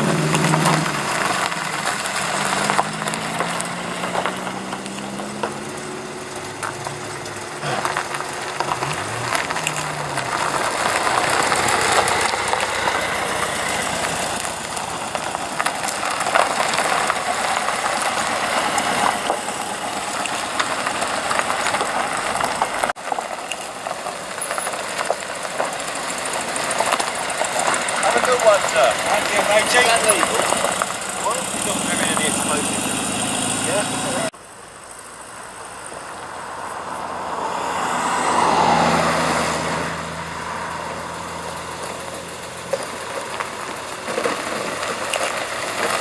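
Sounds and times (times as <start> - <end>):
car engines running: 0.0 - 46.0
cars driving past slowly: 0.0 - 46.0.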